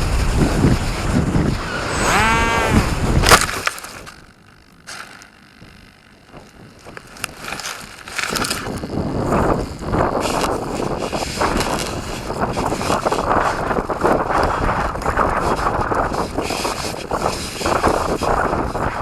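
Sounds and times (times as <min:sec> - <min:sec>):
wind buffeting microphone: 0:00.0 - 0:03.6, 0:05.6 - 0:19.0
whine rising and falling: 0:01.0 - 0:10.8.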